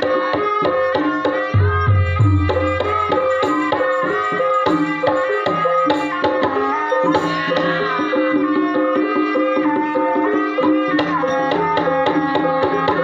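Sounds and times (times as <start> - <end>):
hand drum strokes: 0.0 - 8.8
repeating metallophone notes: 1.5 - 8.5.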